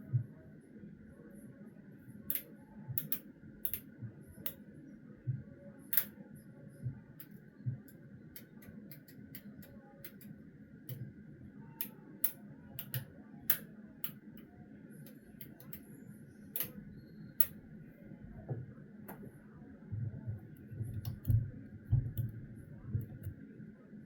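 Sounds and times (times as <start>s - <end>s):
faint steady hum: 0.0s - 24.0s
light clicks and taps: 11.8s - 15.8s, 20.3s - 23.4s.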